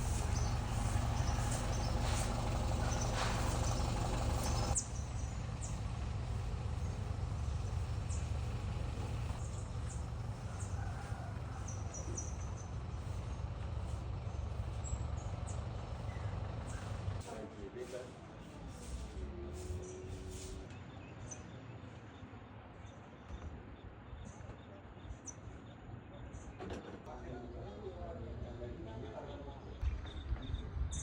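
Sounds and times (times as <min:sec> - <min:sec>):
low rumble: 0:00.0 - 0:10.5
small birds chirping: 0:00.0 - 0:17.2.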